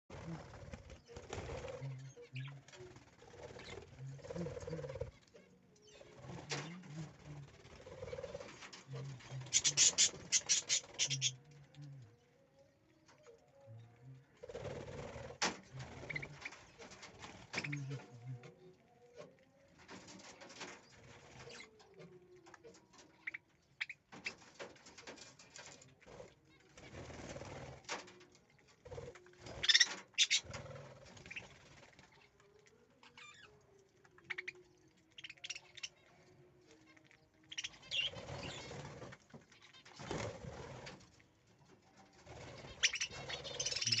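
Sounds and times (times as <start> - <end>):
budgerigars chirping: 9.5 - 11.3, 29.6 - 30.5, 42.7 - 44.0.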